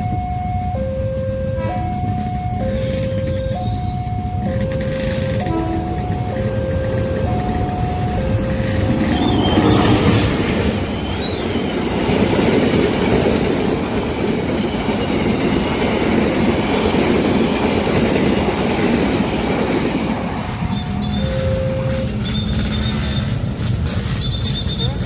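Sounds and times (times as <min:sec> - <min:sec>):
train wheels rumbling on rails: 0:00.0 - 0:25.0
high wheel squeals: 0:01.8 - 0:12.3, 0:20.5 - 0:25.0.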